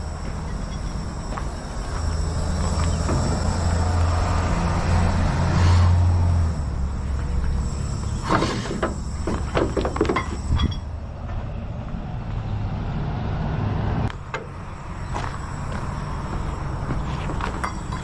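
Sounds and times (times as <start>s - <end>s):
engine idling: 0.0s - 12.5s
metallic clanks and rattles: 8.2s - 10.9s.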